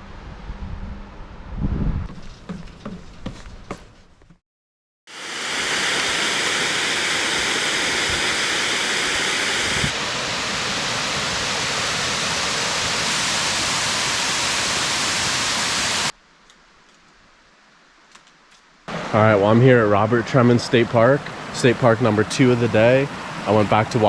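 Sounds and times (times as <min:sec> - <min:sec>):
waterfall rushing: 0:05.1 - 0:16.1, 0:18.9 - 0:24.0.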